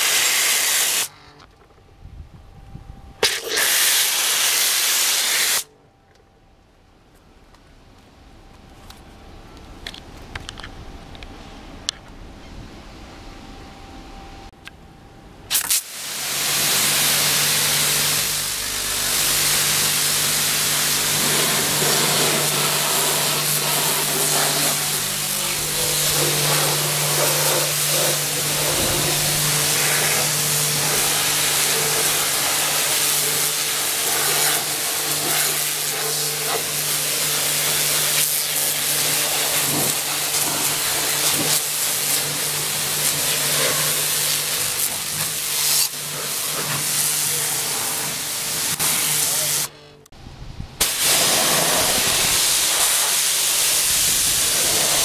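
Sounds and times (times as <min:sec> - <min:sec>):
pressure washer spraying: 0:00.0 - 0:01.1, 0:03.2 - 0:05.6, 0:15.5 - 0:49.7, 0:50.8 - 0:55.0
steady hum: 0:05.6 - 0:55.0.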